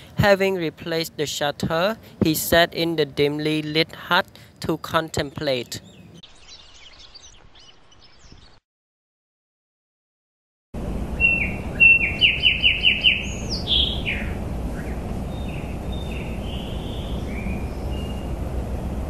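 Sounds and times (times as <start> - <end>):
outdoor background noise: 0.0 - 8.6, 10.8 - 19.0
bird calling: 11.2 - 18.4.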